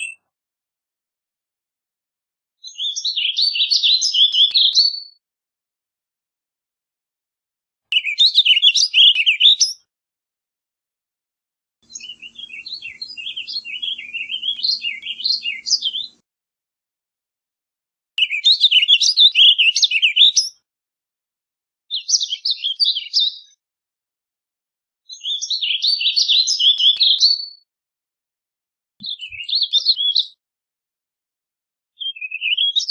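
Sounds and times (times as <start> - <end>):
songbird warbling: 8.0 - 9.8, 11.9 - 16.2, 18.2 - 20.5.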